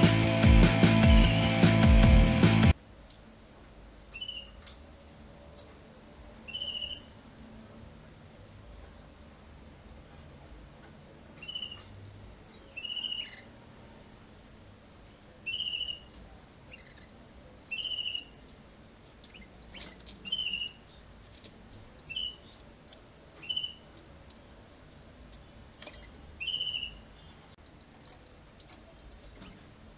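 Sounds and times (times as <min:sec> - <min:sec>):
canary trilled calls: 0:04.1 - 0:04.6, 0:06.5 - 0:07.2, 0:11.4 - 0:13.6, 0:15.4 - 0:18.6, 0:19.2 - 0:24.4, 0:25.8 - 0:29.7.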